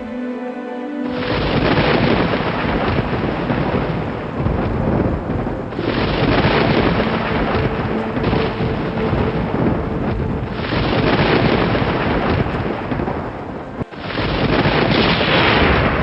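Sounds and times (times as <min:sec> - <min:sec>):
faint held music tone: 0:00.0 - 0:05.9.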